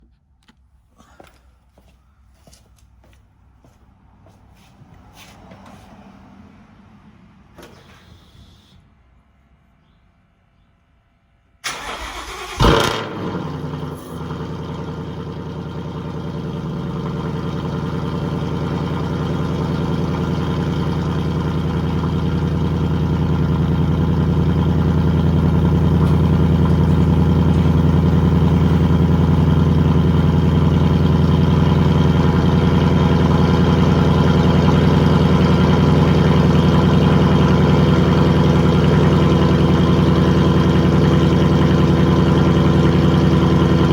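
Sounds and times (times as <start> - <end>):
engine cranking: 11.7 - 12.9
car engine revving and idling: 11.8 - 43.9.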